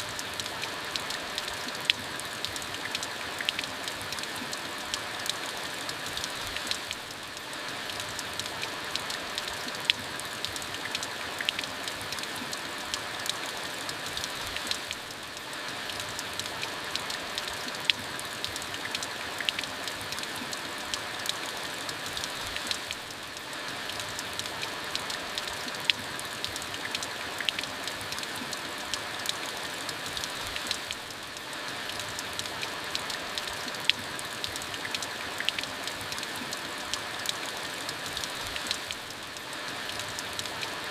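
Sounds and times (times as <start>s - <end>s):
steady rain falling: 0.0s - 40.9s
sharp water drip: 0.1s - 40.9s.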